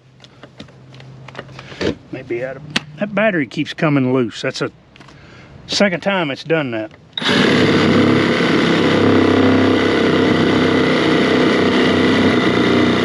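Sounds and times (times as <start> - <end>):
reciprocating saw cutting wood: 7.2 - 13.0.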